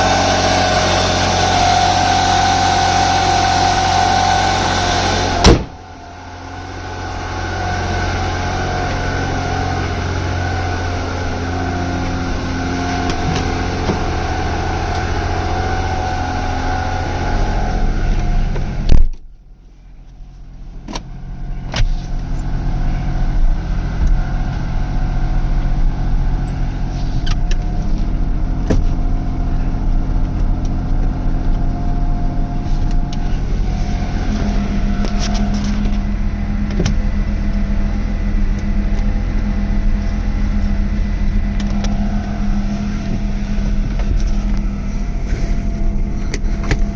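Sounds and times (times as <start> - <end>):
car engine idling: 0.0 - 46.9
loud thump: 5.4 - 5.8.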